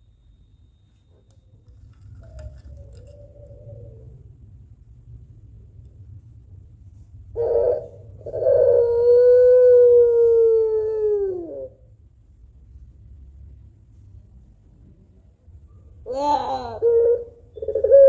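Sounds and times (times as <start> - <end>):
dove cooing: 2.1 - 4.4, 7.3 - 11.9, 16.1 - 18.0.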